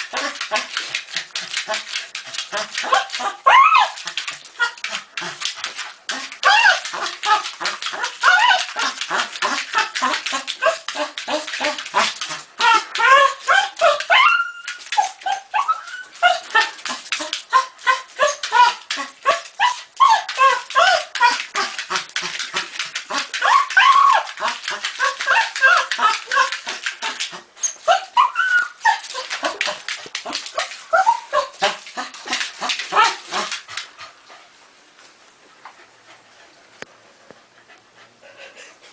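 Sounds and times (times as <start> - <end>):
dog yipping and whining: 2.8 - 4.0, 6.4 - 8.9, 12.6 - 16.7, 17.5 - 21.4, 23.4 - 26.5, 27.6 - 29.8, 30.6 - 31.8.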